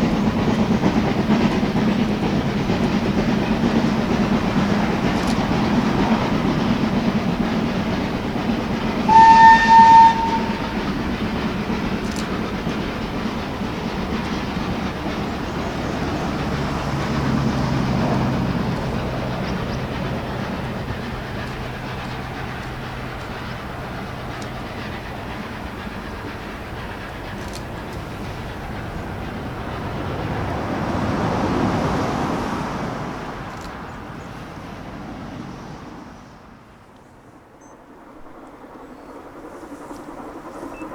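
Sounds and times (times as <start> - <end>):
steam train rumbling past: 0.0 - 40.9
steam whistle blast: 8.8 - 11.6.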